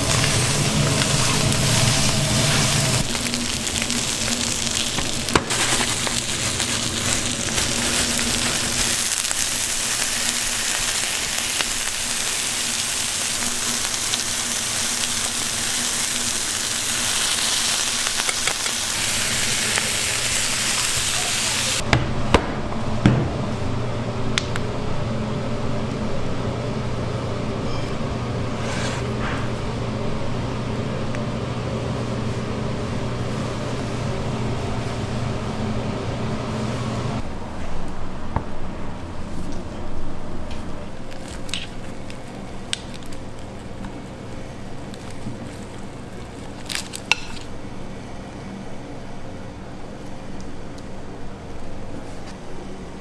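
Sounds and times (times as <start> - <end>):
chicken sizzling: 0.0 - 21.8.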